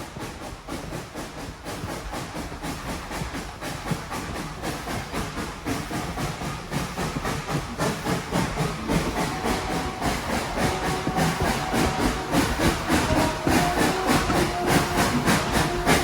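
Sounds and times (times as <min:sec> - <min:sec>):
steam hiss: 0:00.0 - 0:16.0
steam locomotive exhaust chuffs: 0:00.0 - 0:16.0.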